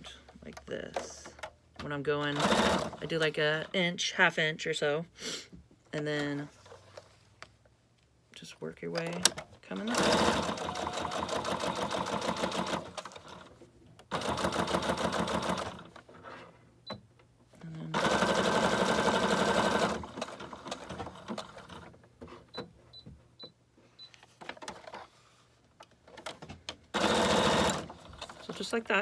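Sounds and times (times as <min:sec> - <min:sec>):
sewing machine stitching: 0:02.2 - 0:03.2, 0:09.2 - 0:16.1, 0:17.9 - 0:21.9, 0:26.9 - 0:28.7.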